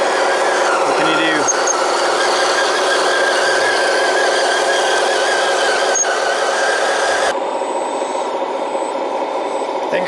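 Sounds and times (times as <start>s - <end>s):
hydraulic pump whining: 0.0s - 10.0s
low motor hum: 0.0s - 10.0s.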